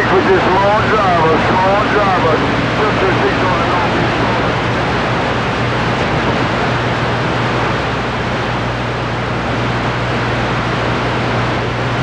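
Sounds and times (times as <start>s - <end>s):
radio receiver hiss: 0.0s - 4.7s
low hum: 0.0s - 10.6s.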